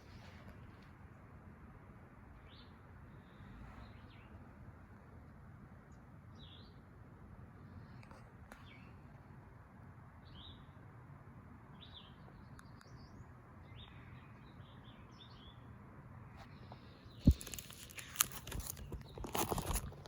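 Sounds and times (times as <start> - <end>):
low background hum: 0.0 - 20.0
faint bird chirps: 11.7 - 18.1
rustling: 16.4 - 20.0.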